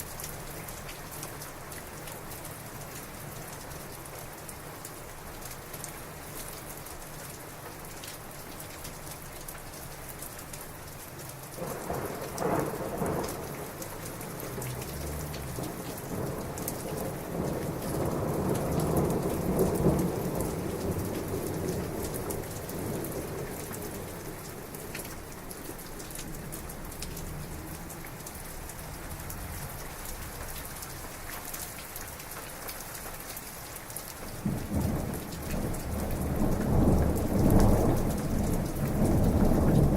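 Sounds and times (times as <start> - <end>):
heavy rain falling: 0.0 - 39.9
thunder rumbling: 11.6 - 30.4, 34.3 - 39.9.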